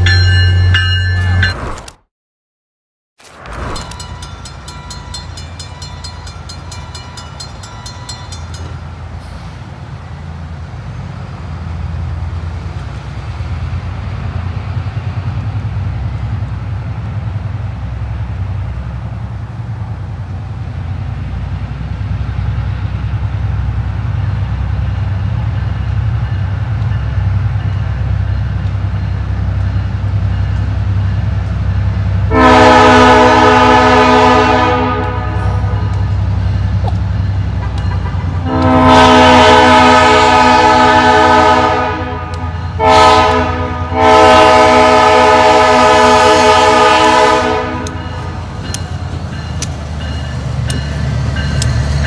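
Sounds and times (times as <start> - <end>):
level-crossing bell ringing: 0.0 - 1.6, 3.8 - 8.8
diesel locomotive rumble: 3.4 - 52.0
locomotive horn chord: 32.3 - 36.0, 37.6 - 48.5.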